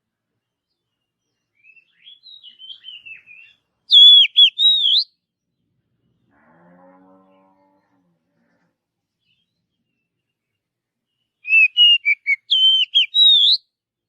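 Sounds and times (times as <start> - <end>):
bird singing: 0.4 - 5.1, 9.2 - 13.6
whistled bird notes: 1.6 - 5.1, 11.4 - 13.6.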